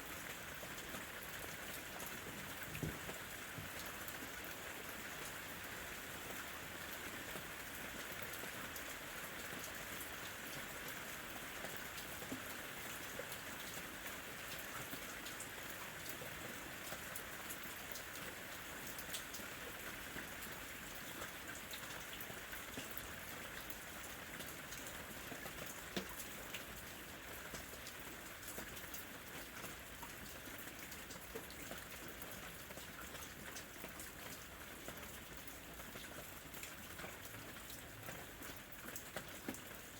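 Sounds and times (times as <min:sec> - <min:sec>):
steady rain hiss: 0:00.0 - 0:24.3.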